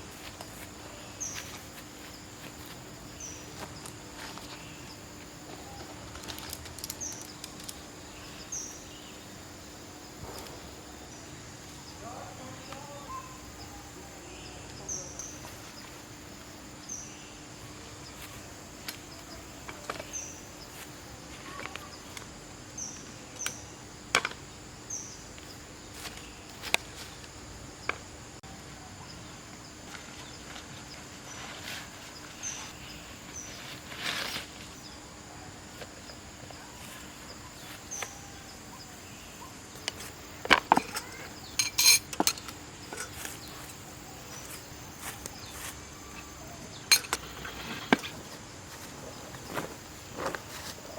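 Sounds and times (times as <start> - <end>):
metal cookware clinking: 40.8 - 43.2.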